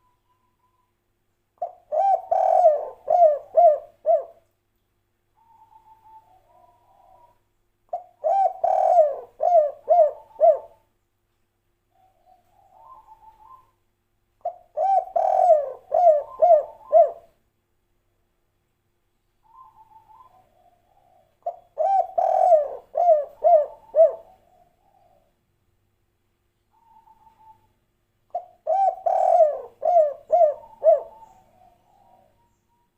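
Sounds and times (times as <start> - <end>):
dove cooing song: 1.6 - 4.4, 5.4 - 10.9, 11.9 - 13.8, 14.4 - 17.4, 19.4 - 25.4, 26.7 - 32.9.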